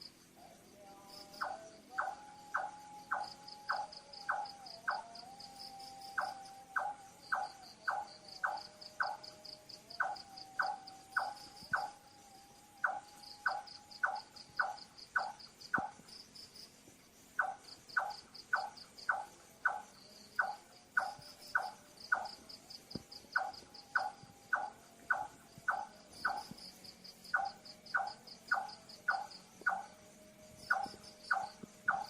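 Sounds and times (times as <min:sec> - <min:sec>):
crickets chirping: 0:00.0 - 0:32.0
night bird repeated notes: 0:01.4 - 0:05.1, 0:05.8 - 0:09.4, 0:10.0 - 0:12.0, 0:12.8 - 0:16.0, 0:17.4 - 0:32.0.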